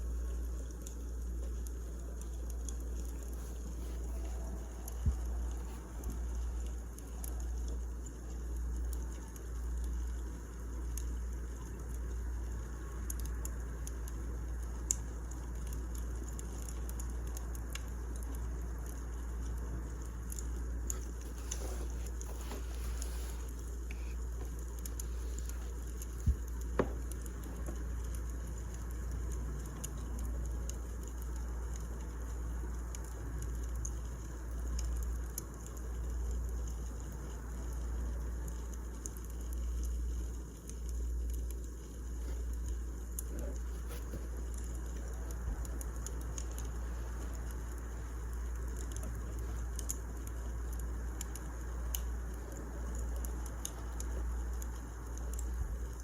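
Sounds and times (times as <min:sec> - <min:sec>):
wood fire crackling: 0:00.0 - 0:56.0
fire popping: 0:13.1 - 0:36.8, 0:37.7 - 0:56.0.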